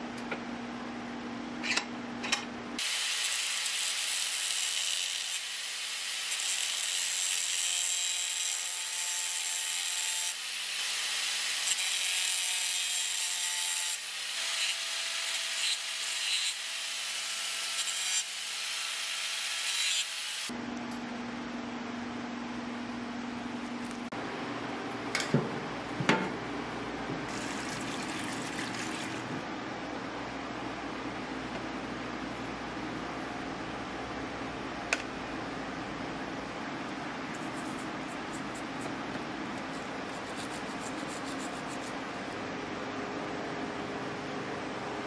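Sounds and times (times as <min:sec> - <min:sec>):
tool rasping on steel: 0:39.6 - 0:42.0.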